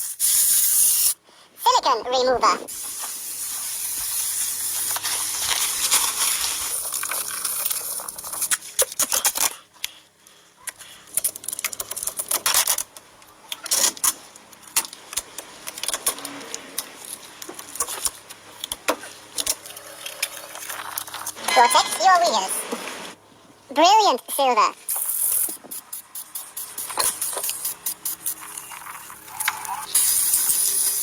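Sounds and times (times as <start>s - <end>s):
aerosol can spraying: 0.0s - 1.2s, 2.7s - 6.4s, 24.9s - 28.6s, 29.9s - 31.0s.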